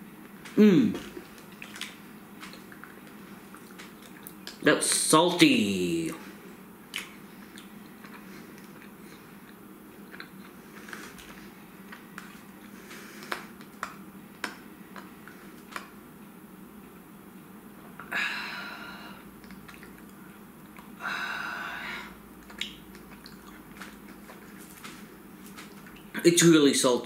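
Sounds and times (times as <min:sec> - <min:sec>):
person chewing: 0:00.2 - 0:05.0, 0:06.9 - 0:16.0, 0:19.2 - 0:21.0, 0:22.0 - 0:26.2
wet mouth clicks and smacks: 0:00.4 - 0:04.6, 0:06.9 - 0:09.0, 0:19.4 - 0:21.0, 0:22.4 - 0:26.1
breathy exhales: 0:18.0 - 0:19.3, 0:21.0 - 0:22.2.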